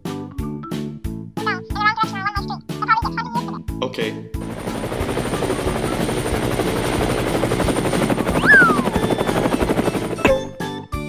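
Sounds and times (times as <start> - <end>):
music: 0.0 - 11.0
helicopter rotor chopping: 4.4 - 10.6
whistling swoop: 8.3 - 10.5.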